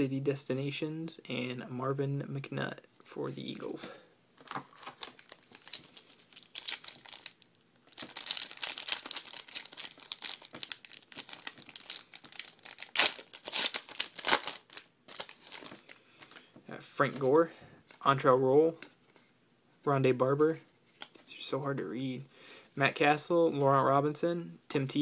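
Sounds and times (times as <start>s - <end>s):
plastic wrappers crinkling: 4.4s - 16.5s.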